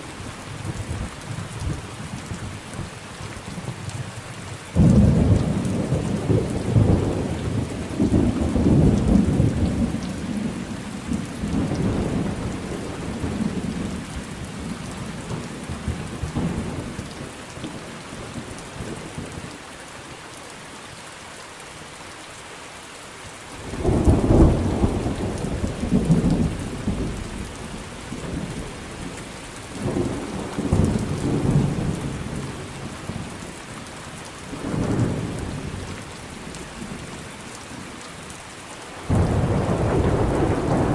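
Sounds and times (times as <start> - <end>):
steady rain: 0.0 - 40.9
thunder rumbling: 23.8 - 29.2, 29.8 - 33.4, 39.1 - 40.9
loud thunder clap: 39.1 - 40.9.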